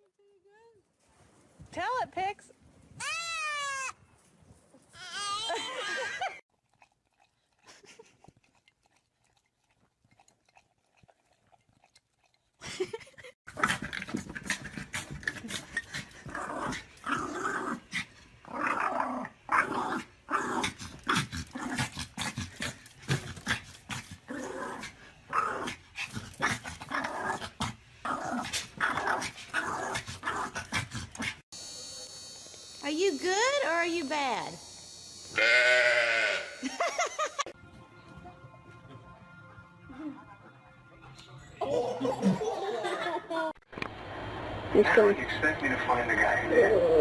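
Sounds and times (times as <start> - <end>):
dog growling: 13.5 - 31.4.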